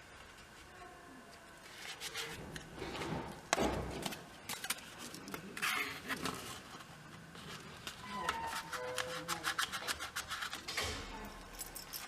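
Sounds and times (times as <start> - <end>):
objects being moved: 1.7 - 9.4.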